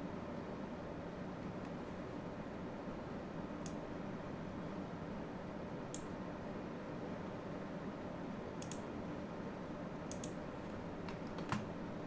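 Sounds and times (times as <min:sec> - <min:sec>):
low room hum: 0:00.0 - 0:12.0
computer mouse clicking: 0:08.6 - 0:08.9, 0:10.1 - 0:10.4.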